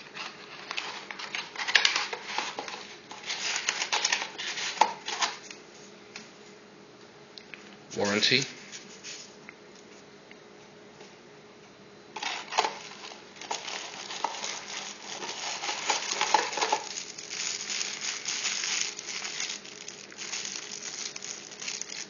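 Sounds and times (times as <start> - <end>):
packaging crinkling and rustling: 0.0 - 5.6, 12.2 - 22.0.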